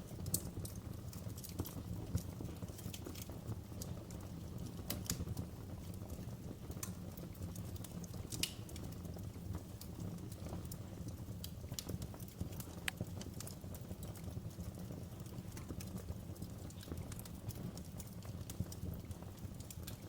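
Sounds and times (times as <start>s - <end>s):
low rumble of flames: 0.0s - 20.0s
wood fire crackling and popping: 0.0s - 20.0s.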